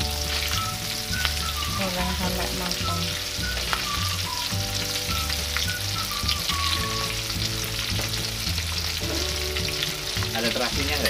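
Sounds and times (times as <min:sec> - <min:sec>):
vegetables frying in hot oil: 0:00.0 - 0:11.0.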